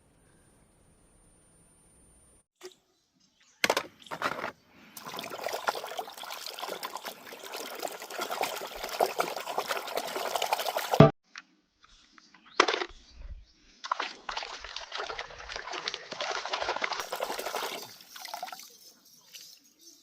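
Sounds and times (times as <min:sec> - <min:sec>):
water pouring and splashing: 0:04.1 - 0:11.2, 0:13.8 - 0:19.6.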